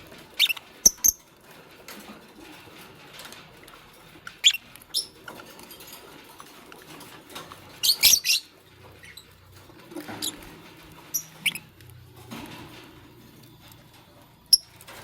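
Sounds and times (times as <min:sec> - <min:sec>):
lovebird chirping: 0:11.1 - 0:11.6.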